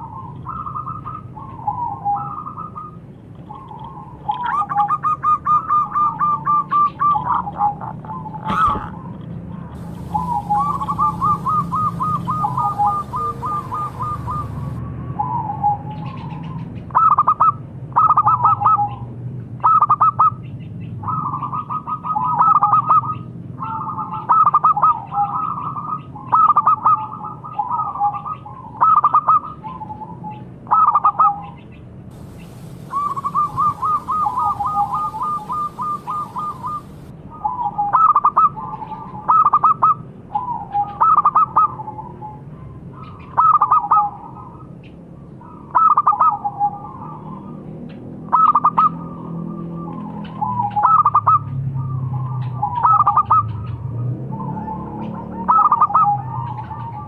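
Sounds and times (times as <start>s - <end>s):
dove cooing: 3.5s - 9.2s, 9.8s - 15.8s, 32.1s - 41.9s.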